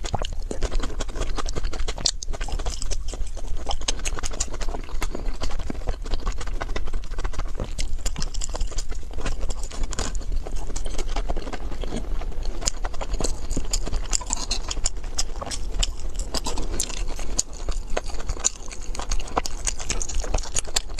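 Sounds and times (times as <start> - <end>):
chewing and mouth sounds: 0.0 - 20.9.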